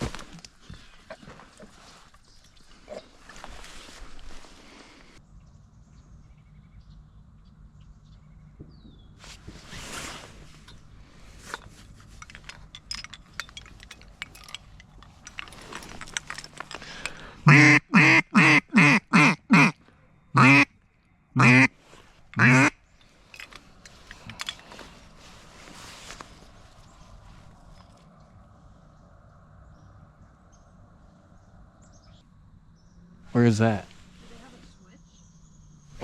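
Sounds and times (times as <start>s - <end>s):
light rustling and clicks: 10.3s - 17.2s
duck call quacks: 17.4s - 19.8s, 20.4s - 20.7s, 21.4s - 21.7s, 22.4s - 22.8s.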